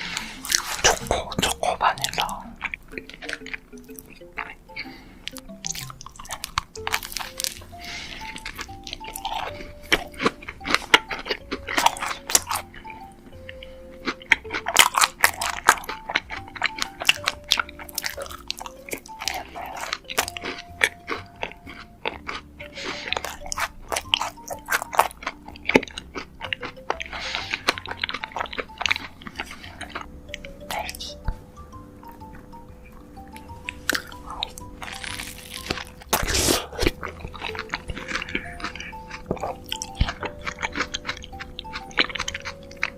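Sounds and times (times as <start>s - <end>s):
crunching and chewing macaron: 0.0s - 42.9s
soft background music: 0.0s - 42.9s.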